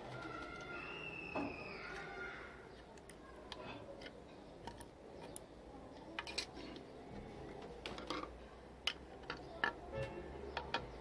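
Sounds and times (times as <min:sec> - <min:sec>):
small plastic parts clicking: 0:02.9 - 0:05.5.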